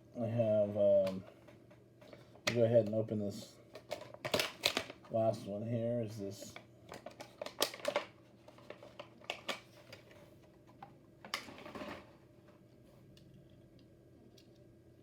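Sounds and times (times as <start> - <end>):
packaging rustle: 3.7 - 5.0, 6.9 - 10.2
plastic packaging clicking and crackling: 3.7 - 5.1, 6.5 - 10.2.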